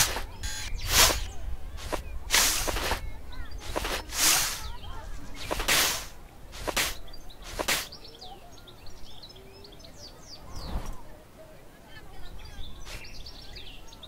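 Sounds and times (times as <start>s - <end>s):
footsteps in sand: 0.0s - 8.0s, 12.8s - 13.1s
small birds chirping: 0.0s - 14.0s.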